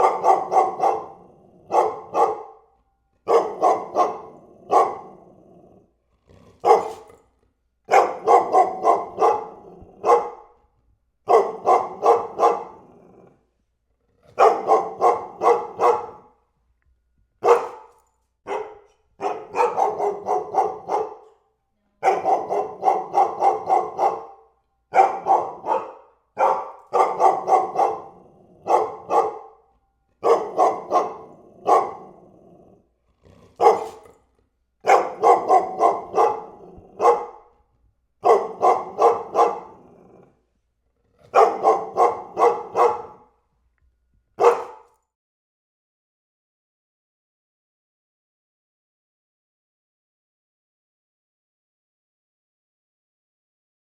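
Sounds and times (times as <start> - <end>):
dog barking: 0.0 - 5.8, 6.5 - 7.3, 7.9 - 10.6, 11.2 - 13.4, 14.3 - 16.4, 17.4 - 32.8, 33.6 - 34.2, 34.8 - 40.4, 41.3 - 43.4, 44.4 - 45.1.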